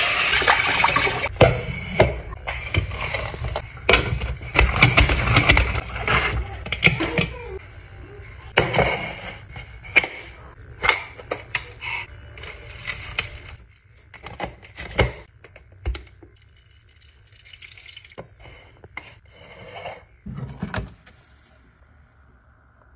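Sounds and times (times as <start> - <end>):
items clattering into fridge: 20.2 - 21.6.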